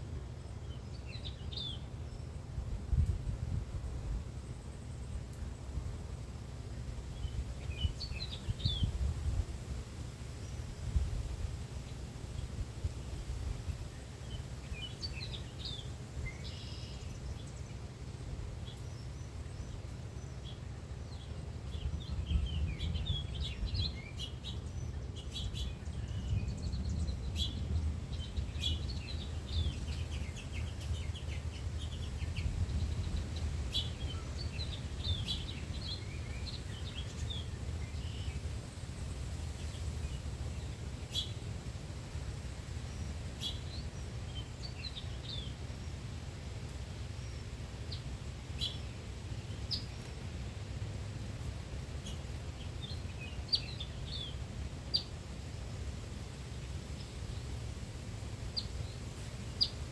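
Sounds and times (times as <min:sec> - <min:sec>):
small birds chirping: 0:00.4 - 0:03.1, 0:04.0 - 0:59.9
steady low rumble: 0:20.8 - 0:56.0.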